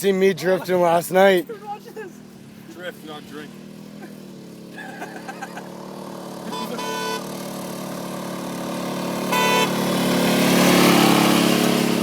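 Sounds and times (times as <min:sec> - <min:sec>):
riding lawn mower engine: 0:00.0 - 0:12.0
horn honking: 0:06.4 - 0:07.5, 0:09.0 - 0:11.2.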